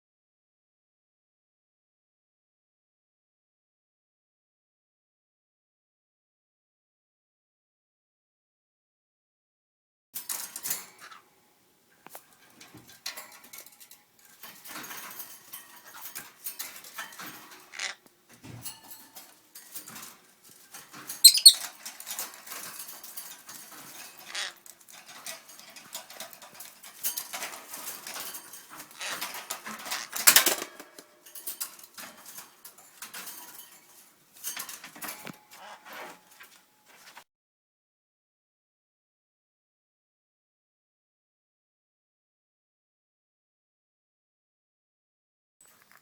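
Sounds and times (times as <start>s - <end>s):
lovebird squawking: 21.2s - 21.6s.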